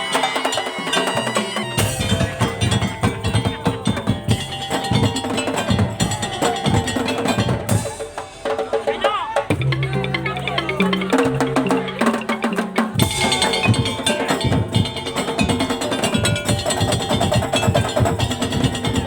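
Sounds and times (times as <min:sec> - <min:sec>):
rapid drum percussion: 0:00.0 - 0:19.0
struck wooden percussion: 0:00.0 - 0:19.0
held bass and melody notes: 0:09.5 - 0:18.0.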